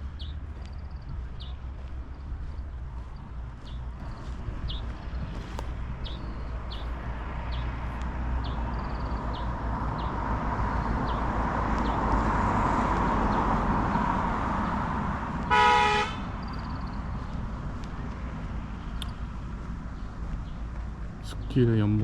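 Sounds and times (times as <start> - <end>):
vehicle passing on road: 0.0 - 22.0
car horn honk: 15.5 - 16.4.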